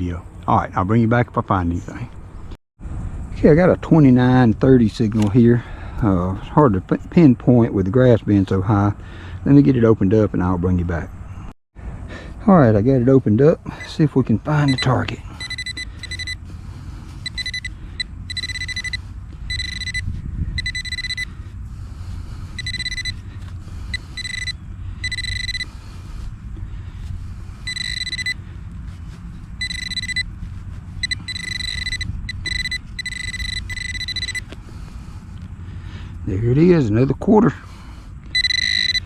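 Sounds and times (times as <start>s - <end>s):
metal detector pinpointer buzzing: 14.6s - 16.5s, 17.2s - 21.4s, 22.6s - 25.9s, 27.6s - 28.4s, 29.6s - 30.3s, 31.0s - 34.6s, 38.3s - 39.0s.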